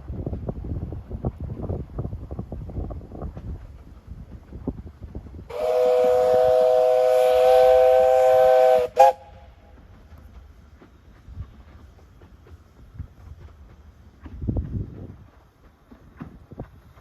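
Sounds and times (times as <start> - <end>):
steam locomotive chord whistle: 5.5 - 9.8.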